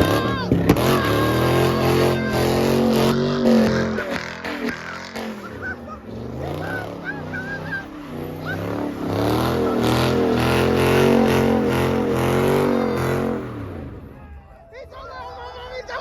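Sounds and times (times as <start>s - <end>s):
car engine revving: 0.0s - 14.4s
tyres squealing: 0.0s - 16.0s.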